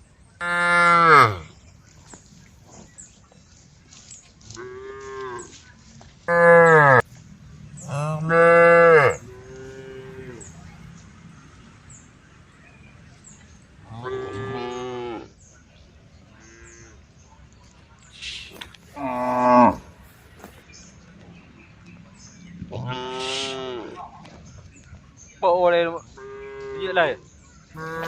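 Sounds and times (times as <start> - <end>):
cows mooing: 0.4 - 1.5, 6.3 - 7.0, 7.8 - 10.8, 13.8 - 15.3, 19.0 - 20.0, 22.7 - 24.0, 27.8 - 28.0.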